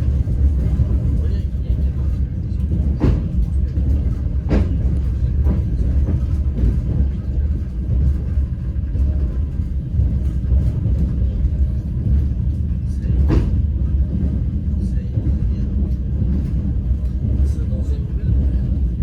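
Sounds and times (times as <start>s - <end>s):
train carriage rumbling: 0.0s - 19.0s.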